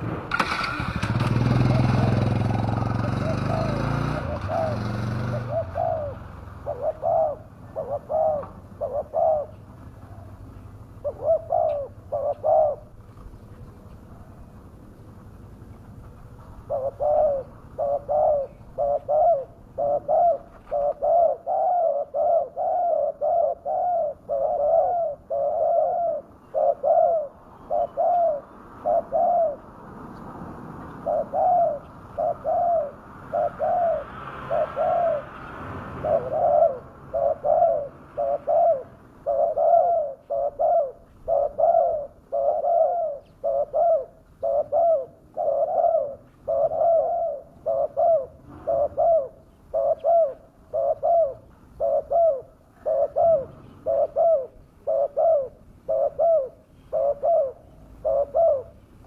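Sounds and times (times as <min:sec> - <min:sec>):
dove cooing: 0:00.0 - 0:14.6, 0:15.8 - 0:59.0.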